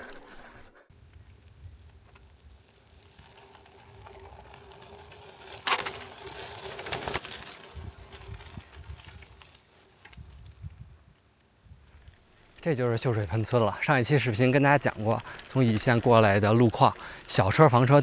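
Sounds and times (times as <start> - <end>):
wind rumbling on microphone: 0.9 - 5.7, 7.0 - 12.2
bicycle clattering rattle: 0.9 - 11.1.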